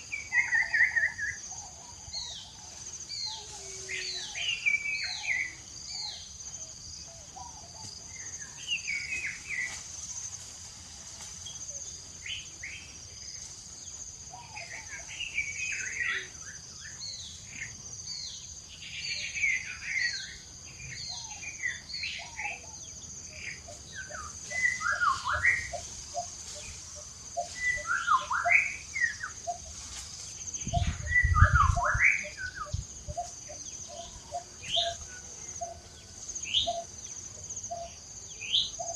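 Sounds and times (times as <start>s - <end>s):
high insect drone: 0.0s - 38.9s
birds chirping: 11.5s - 29.8s, 30.4s - 38.9s.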